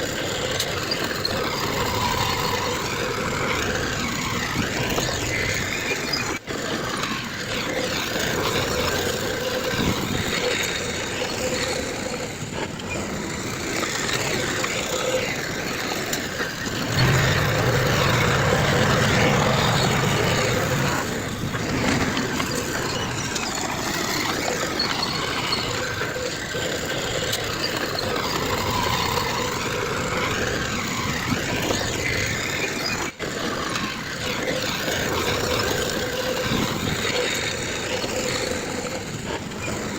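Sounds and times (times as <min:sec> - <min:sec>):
diesel construction machinery running: 0:16.6 - 0:25.6.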